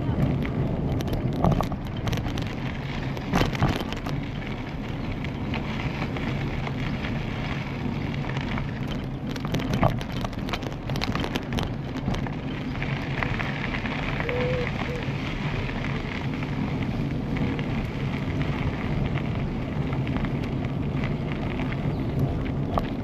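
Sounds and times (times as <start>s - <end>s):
wind on microphone: 0.0s - 19.9s
bicycle tyres rolling: 0.0s - 23.0s
sharp rattles and knocks: 0.1s - 13.4s.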